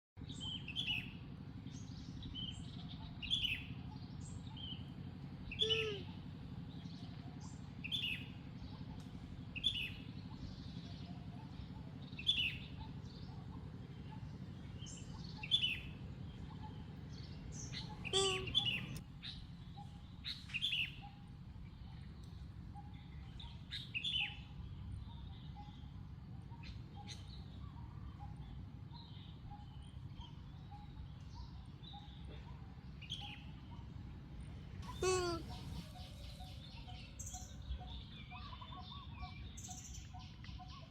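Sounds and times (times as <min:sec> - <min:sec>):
high-pitched animal chirps: 0:18.0 - 0:18.9, 0:34.9 - 0:36.0.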